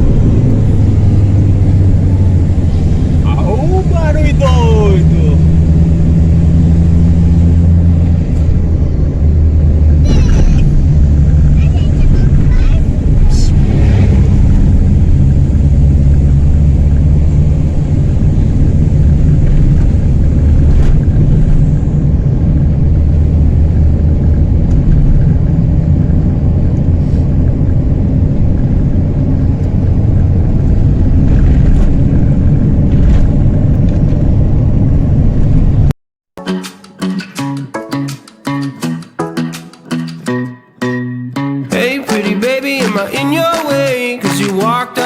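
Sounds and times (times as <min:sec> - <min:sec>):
loud car engine drone: 0:00.0 - 0:35.9.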